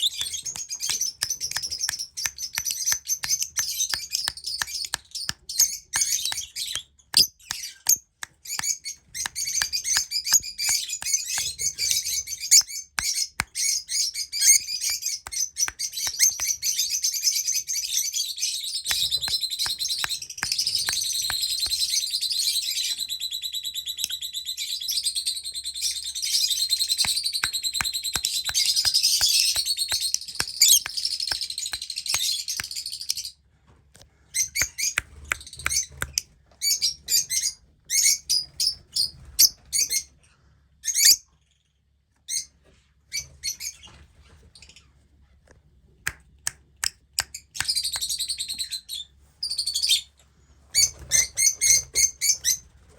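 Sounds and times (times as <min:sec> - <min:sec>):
sharp clicks: 0:00.0 - 0:11.6, 0:18.9 - 0:21.9, 0:27.0 - 0:32.8
lovebirds chirping and chattering: 0:00.0 - 0:24.2, 0:25.8 - 0:33.3.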